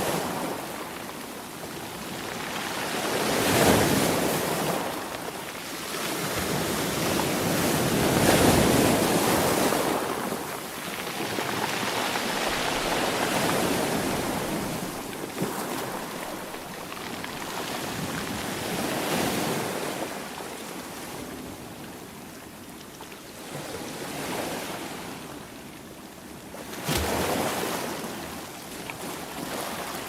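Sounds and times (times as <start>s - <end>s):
sea waves surging: 0.0s - 21.4s.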